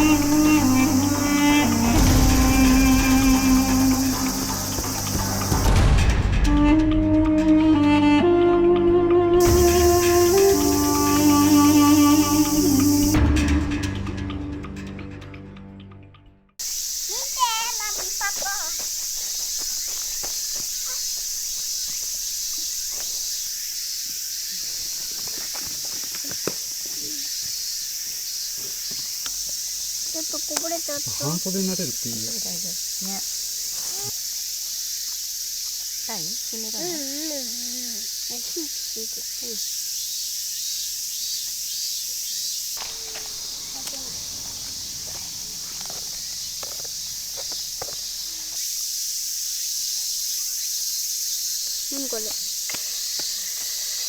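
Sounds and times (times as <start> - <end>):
insects shrilling: 0.0 - 8.3, 9.4 - 14.2, 16.6 - 54.0
footsteps in undergrowth: 17.1 - 32.0, 42.8 - 48.7, 51.5 - 54.0.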